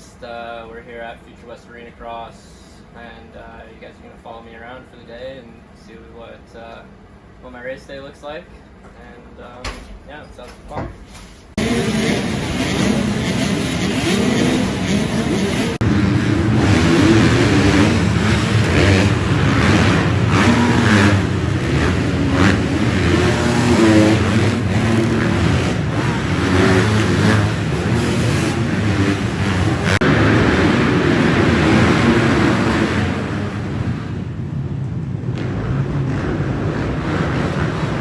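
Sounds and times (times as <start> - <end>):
motocross bike engines revving: 11.5 - 38.0.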